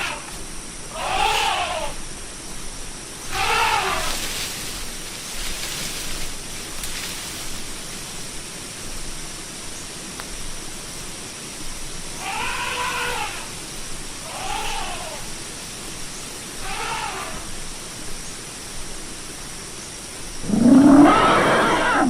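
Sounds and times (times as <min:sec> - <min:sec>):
steady hiss: 0:00.0 - 0:22.0
elephant calling: 0:00.9 - 0:02.0, 0:03.3 - 0:04.2, 0:12.2 - 0:13.5, 0:14.2 - 0:15.3, 0:16.6 - 0:17.5, 0:20.4 - 0:22.0.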